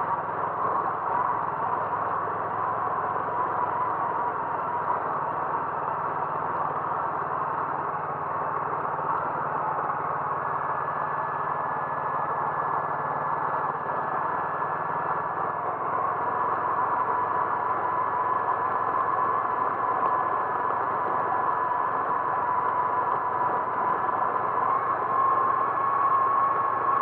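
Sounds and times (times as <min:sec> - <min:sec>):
car engine and road noise: 0:00.0 - 0:27.0
faint high whine: 0:00.0 - 0:27.0.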